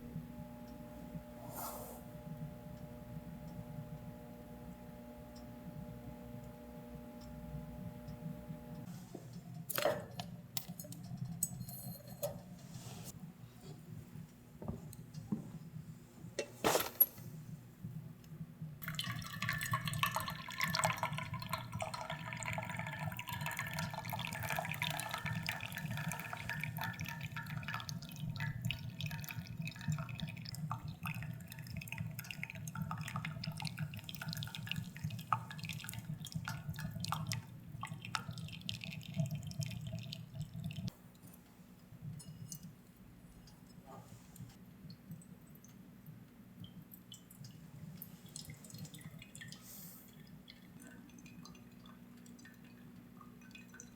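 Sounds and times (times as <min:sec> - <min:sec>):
steady low hum: 0:00.0 - 0:09.7
water pouring into container: 0:18.8 - 0:40.9.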